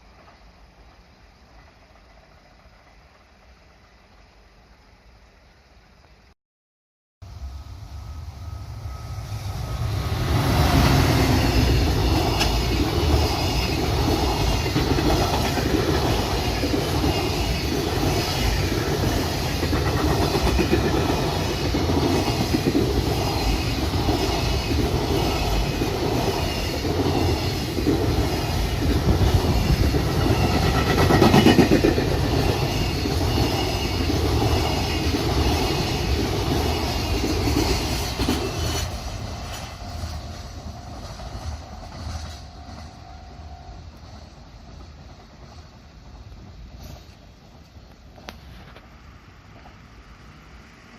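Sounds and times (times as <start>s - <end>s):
freight train wheels clattering: 9.8s - 43.2s.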